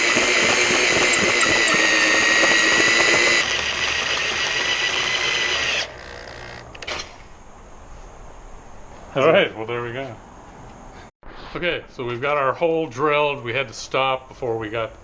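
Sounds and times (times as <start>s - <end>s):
power drill whining into metal: 0.0s - 7.1s.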